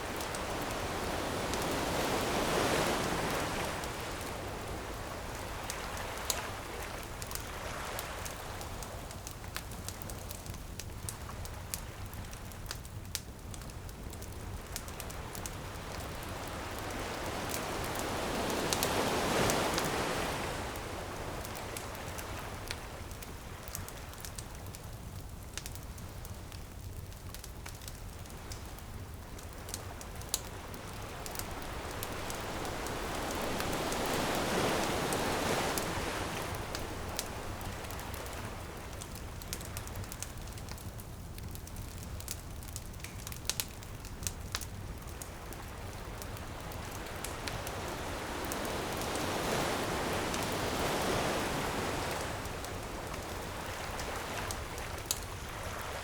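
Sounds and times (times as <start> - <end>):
ocean waves on a beach: 0.0 - 12.8, 14.2 - 24.8, 27.8 - 40.9, 44.3 - 56.0
wood fire crackling: 0.0 - 56.0.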